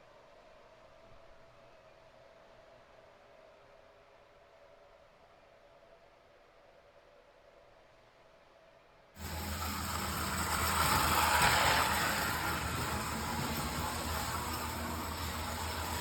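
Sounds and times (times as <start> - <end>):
model train hum and hiss: 9.2 - 16.0.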